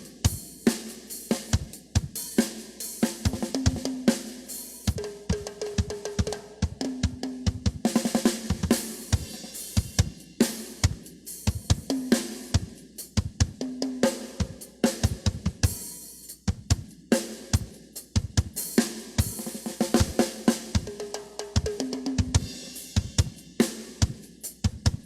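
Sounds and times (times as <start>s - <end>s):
cymbals: 0.0s - 6.7s, 7.8s - 25.0s
snare drum: 0.0s - 25.0s
bass drum: 15.1s - 15.7s.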